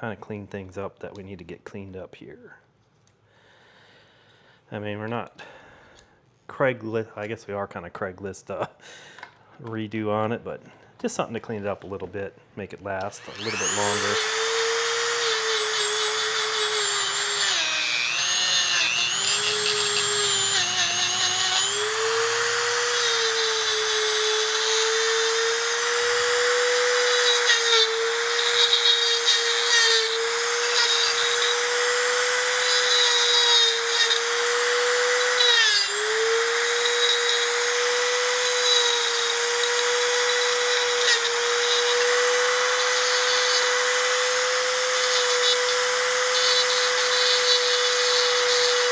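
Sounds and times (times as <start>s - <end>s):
rotary tool whining: 13.2s - 48.9s.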